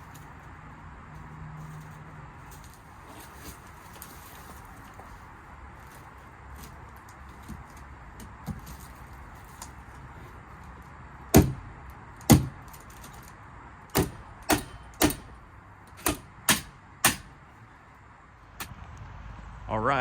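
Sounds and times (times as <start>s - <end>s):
sharp knocks: 11.4s - 11.6s, 12.3s - 12.6s, 13.9s - 15.4s, 16.0s - 17.4s.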